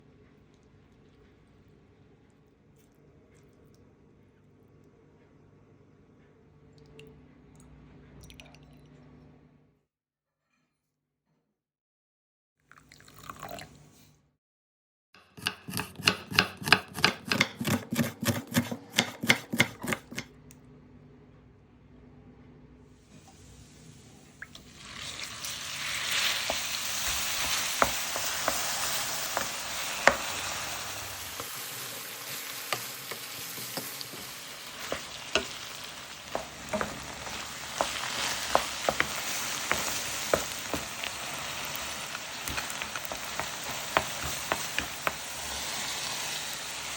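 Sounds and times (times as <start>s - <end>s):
spatula scraping a pan: 15.3s - 20.3s, 25.0s - 46.6s
meat sizzling in hot oil: 24.7s - 46.9s.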